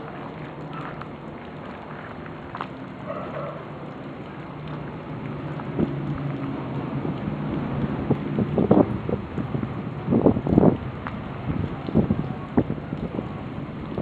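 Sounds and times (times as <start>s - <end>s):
rain: 0.0s - 14.0s
sharp crackles: 0.0s - 14.0s
wind buffeting microphone: 4.9s - 14.0s.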